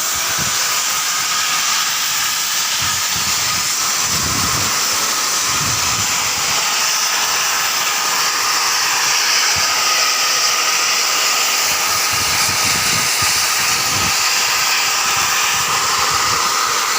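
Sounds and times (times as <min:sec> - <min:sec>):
steam venting hiss: 0:00.0 - 0:16.9.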